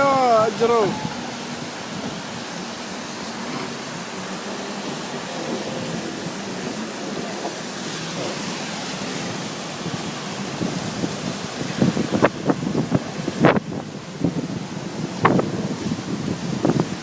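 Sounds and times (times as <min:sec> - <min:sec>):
floodwater rushing: 0:00.0 - 0:17.0.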